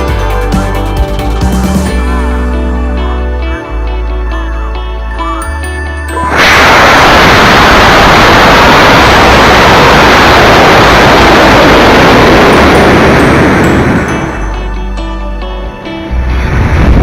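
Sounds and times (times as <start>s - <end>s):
rocket motor roaring: 6.3s - 14.6s.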